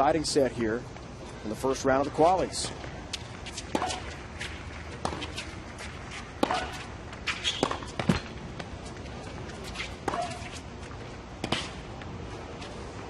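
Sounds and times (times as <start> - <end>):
shoes squeaking on court: 1.3 - 13.0
racket hitting tennis ball: 3.4 - 10.6, 11.4 - 11.9.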